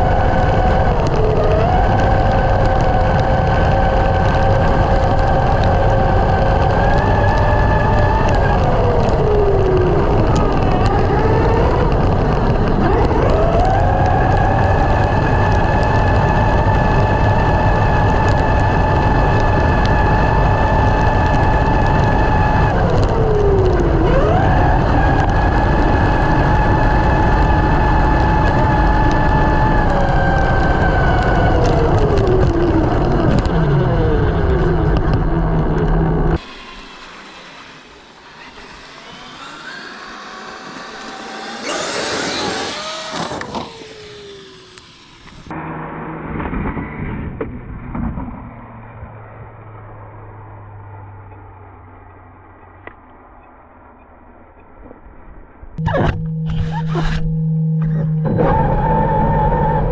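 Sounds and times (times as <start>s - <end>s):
electric motor whine: 0.0s - 45.6s, 55.8s - 59.9s.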